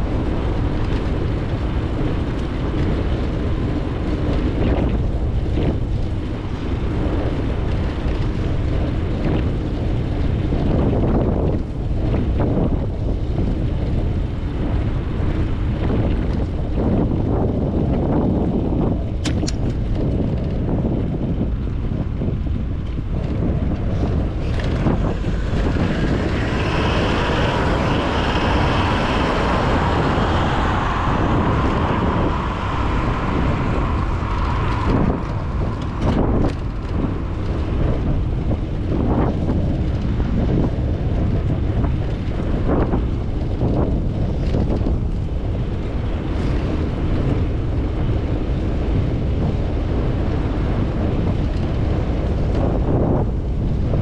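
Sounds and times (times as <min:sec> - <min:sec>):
wind on microphone: 0:00.0 - 0:54.0
high steady whine: 0:21.4 - 0:54.0.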